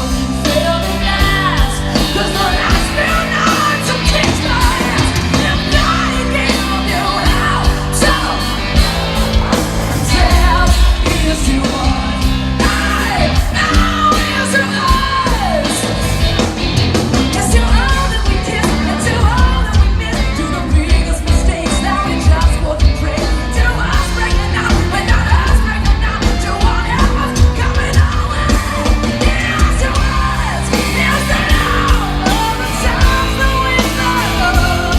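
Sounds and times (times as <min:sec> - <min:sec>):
singer yelling: 0:00.0 - 0:16.1
rock band playing live: 0:00.0 - 0:34.9.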